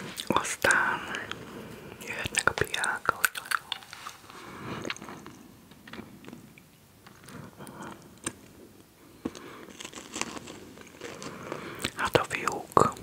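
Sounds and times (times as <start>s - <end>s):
person chewing crunchy snack: 2.1s - 8.4s, 9.1s - 13.0s.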